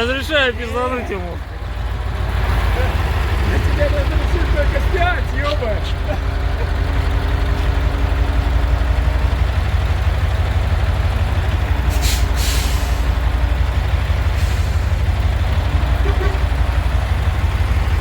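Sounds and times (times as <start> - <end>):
diesel truck engine running: 0.0 - 18.0
compressed air hiss: 11.9 - 13.1.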